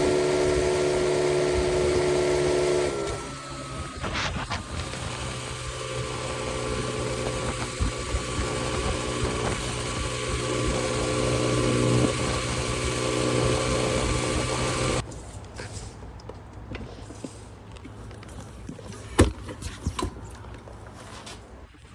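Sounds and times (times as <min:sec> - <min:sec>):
dirt bike engine idling: 0:04.8 - 0:15.0.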